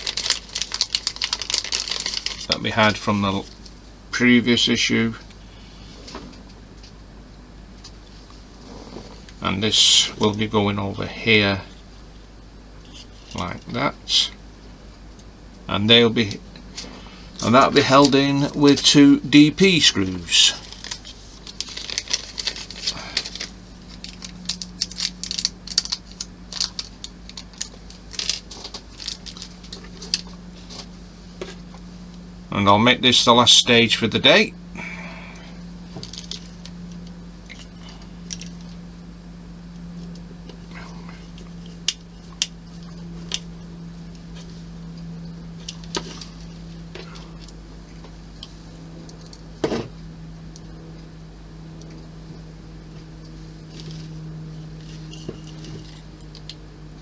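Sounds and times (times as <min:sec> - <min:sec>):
low hum: 0:00.0 - 0:57.0.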